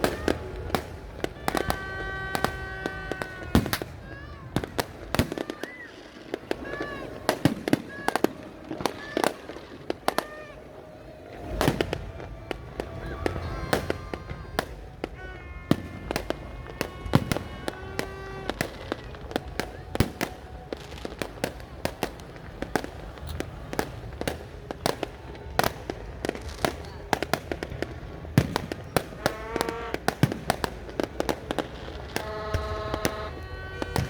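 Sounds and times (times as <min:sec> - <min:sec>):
fireworks bangs and cracks: 0:00.0 - 0:34.0.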